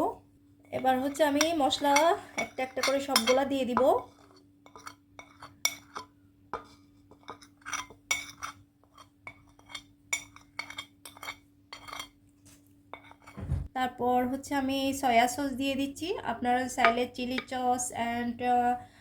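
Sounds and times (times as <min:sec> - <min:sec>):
faint steady hum: 0:00.0 - 0:19.0
spoon clinking against bowls: 0:01.1 - 0:03.9, 0:04.7 - 0:12.2
soft thud: 0:13.4 - 0:13.7.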